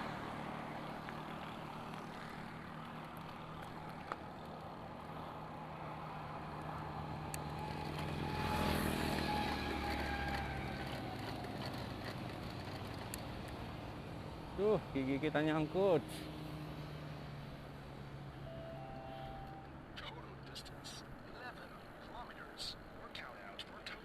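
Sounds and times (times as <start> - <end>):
vehicle engine passing: 6.0 - 19.9.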